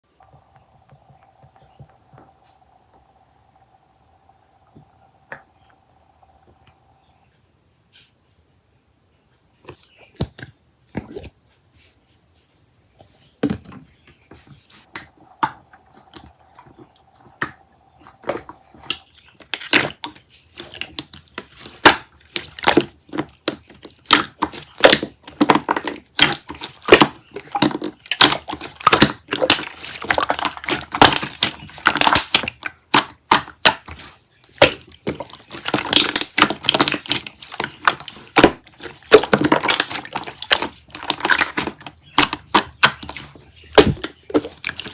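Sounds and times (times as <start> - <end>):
faint steady hum: 0.0 - 10.9
rapid irregular clicking and crackling: 14.8 - 44.9.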